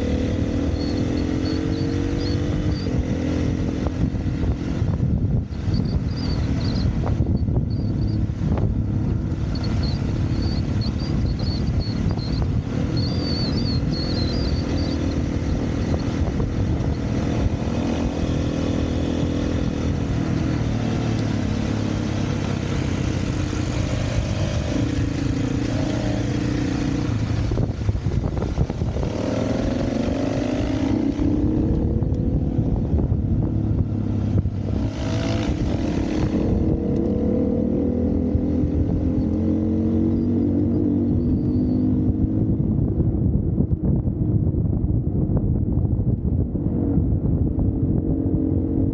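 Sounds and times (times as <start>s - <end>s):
dirt bike engine revving: 9.0s - 32.8s, 33.4s - 40.6s.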